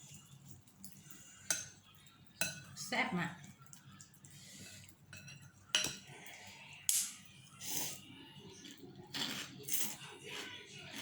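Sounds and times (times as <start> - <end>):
utensils clinking against bowl: 0.0 - 6.4
noisy eating sounds: 0.0 - 11.0.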